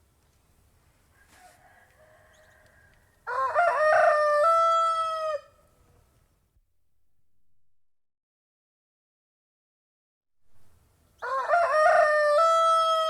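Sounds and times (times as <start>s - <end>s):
rooster crowing: 1.1s - 5.6s, 11.2s - 13.0s.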